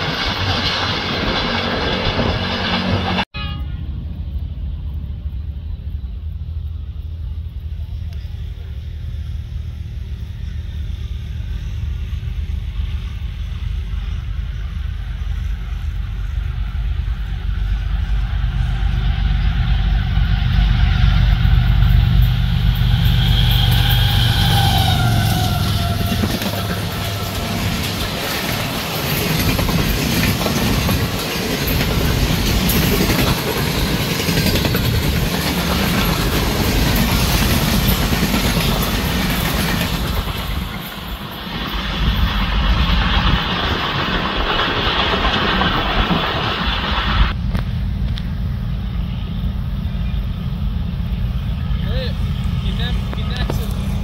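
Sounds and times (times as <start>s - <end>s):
train wheels clattering: 0.0s - 3.3s, 14.6s - 47.4s
locomotive engine rumble: 0.0s - 54.0s.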